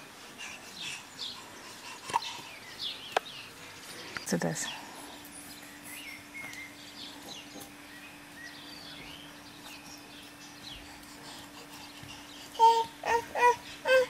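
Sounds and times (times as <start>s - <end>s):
birds chirping: 0.0s - 14.0s
faint steady hum: 0.0s - 14.0s.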